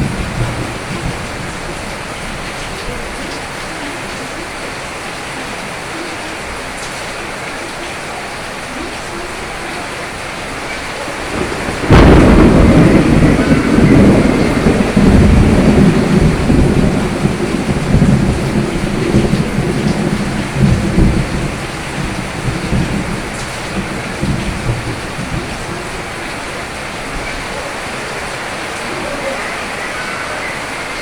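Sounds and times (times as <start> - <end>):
thunder crack and rumble: 0.0 - 4.2, 10.4 - 31.0
steady rain: 0.0 - 31.0.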